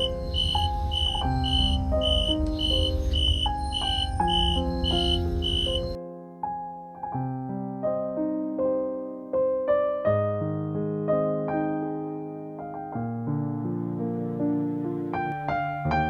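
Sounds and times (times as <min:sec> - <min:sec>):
grass insects chirping: 0:00.0 - 0:06.0
gentle solo piano: 0:00.0 - 0:16.0.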